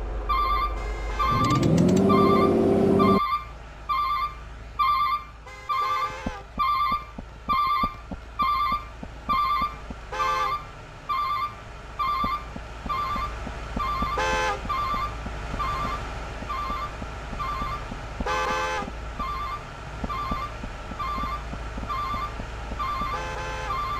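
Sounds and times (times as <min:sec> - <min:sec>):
truck engine running: 0:00.0 - 0:23.9
high electronic beeping: 0:00.4 - 0:03.2, 0:11.1 - 0:17.8, 0:19.2 - 0:23.9
pitched horn tone: 0:00.5 - 0:03.2, 0:04.8 - 0:07.1, 0:12.0 - 0:23.9.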